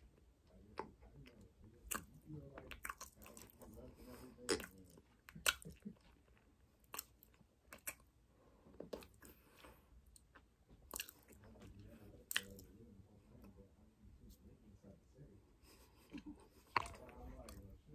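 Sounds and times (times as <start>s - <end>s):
crunchy chewing: 0.7s - 8.1s, 8.7s - 12.7s, 16.1s - 17.7s
wet mouth clicks: 6.9s - 8.1s.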